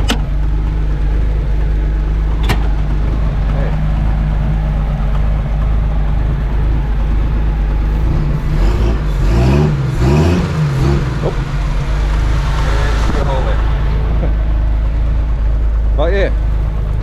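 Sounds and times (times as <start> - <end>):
engine revving: 0.0 - 17.0
truck engine idling: 0.0 - 17.0.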